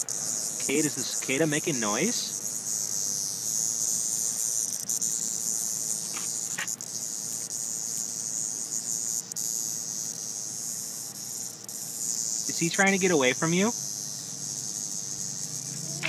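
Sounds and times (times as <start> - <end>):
cicadas buzzing: 0.0 - 16.0.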